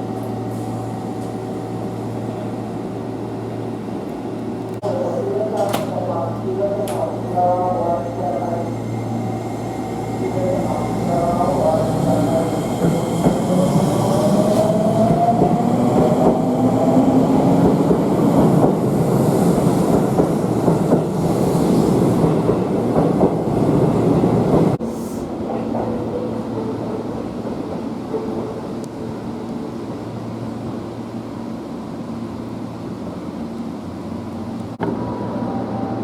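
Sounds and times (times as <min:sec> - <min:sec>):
train rumble and wheel clatter: 0:00.0 - 0:36.0.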